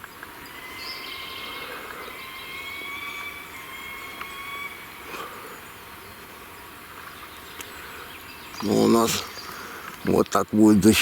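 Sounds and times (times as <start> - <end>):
quiet forest background: 0.0 - 11.0
flying insect whining: 0.4 - 5.8.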